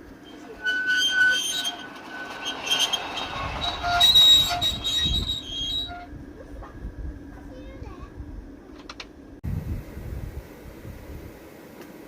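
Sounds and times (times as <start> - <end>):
high-pitched wheel squeals: 0.0 - 6.2
miniature steam train rumbling: 0.0 - 9.3.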